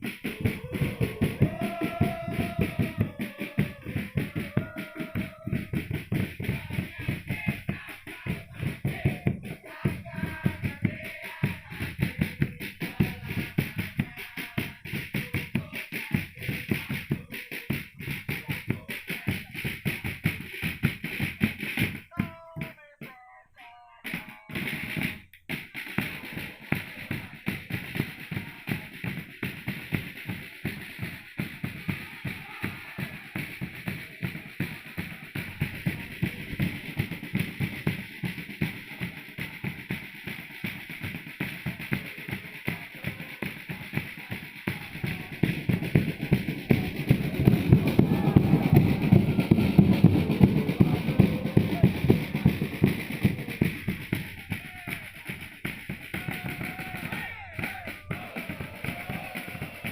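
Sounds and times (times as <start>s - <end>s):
crowd chanting: 0.0s - 20.1s, 21.8s - 25.0s, 25.7s - 59.9s
bass drum and snare beating: 0.0s - 23.2s, 24.0s - 59.9s.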